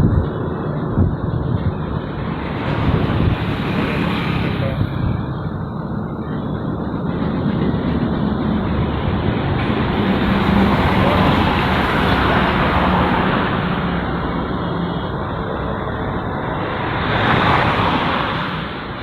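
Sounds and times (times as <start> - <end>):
motorcycle engine hum: 0.0 - 17.1
wind and road noise: 0.0 - 19.0.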